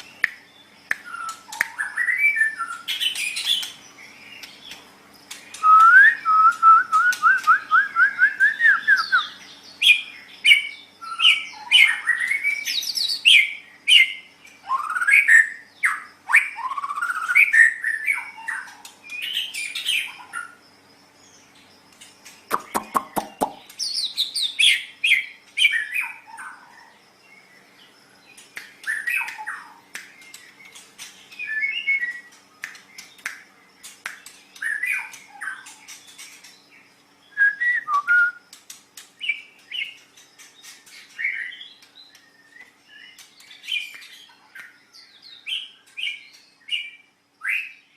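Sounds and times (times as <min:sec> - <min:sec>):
bird singing whistled phrases: 0:00.9 - 0:03.7, 0:05.5 - 0:20.2, 0:31.3 - 0:32.4, 0:34.6 - 0:35.7, 0:37.2 - 0:38.5.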